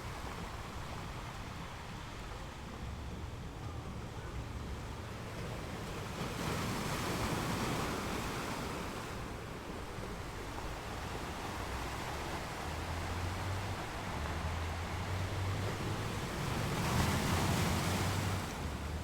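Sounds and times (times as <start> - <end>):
sea waves washing ashore: 0.0 - 19.0.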